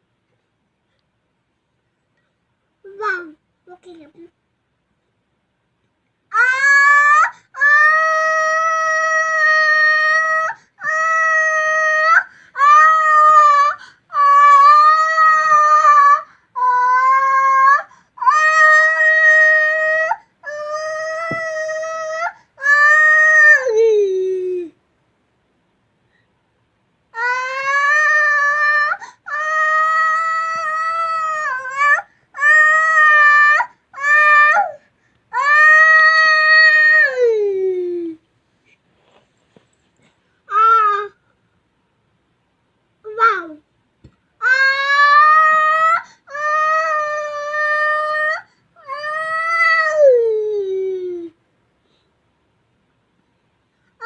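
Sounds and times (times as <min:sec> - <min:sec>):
baby wailing: 0:06.3 - 0:23.9, 0:27.2 - 0:37.9, 0:40.5 - 0:41.2, 0:44.4 - 0:51.3.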